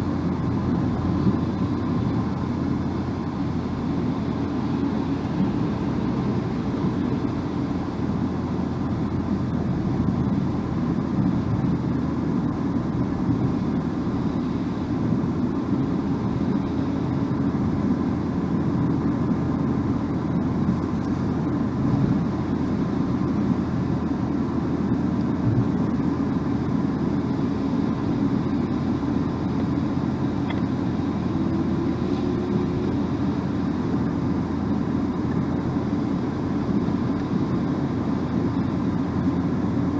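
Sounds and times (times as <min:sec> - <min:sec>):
car engine hum: 0:00.0 - 0:39.9
car road and tyre noise: 0:00.0 - 0:39.9.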